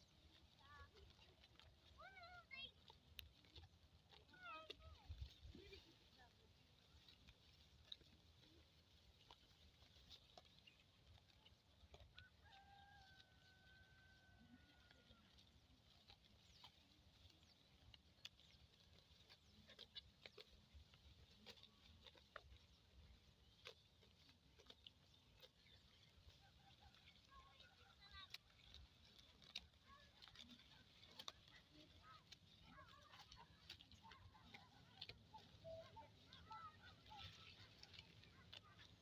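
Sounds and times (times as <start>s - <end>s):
distant rooster crowing: 12.4s - 14.6s.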